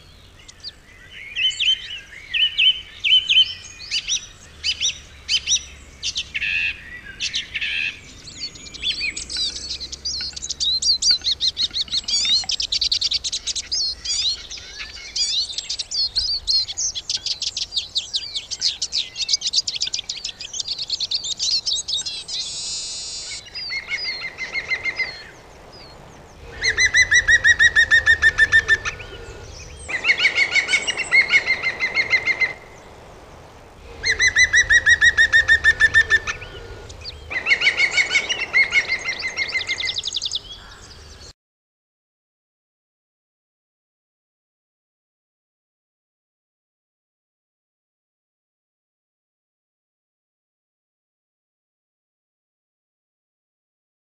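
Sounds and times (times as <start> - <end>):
songbirds chirping and trilling: 0.0 - 41.4.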